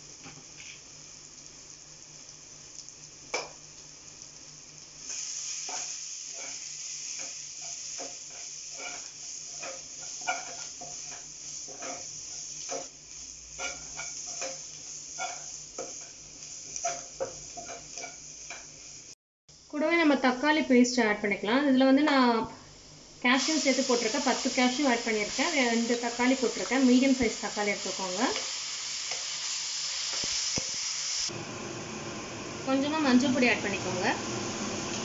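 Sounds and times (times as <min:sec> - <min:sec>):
onions sizzling in oil: 0:00.0 - 0:20.2, 0:21.1 - 0:35.0
spoon scraping and tapping pan: 0:07.2 - 0:13.0, 0:13.6 - 0:16.2, 0:16.8 - 0:18.7.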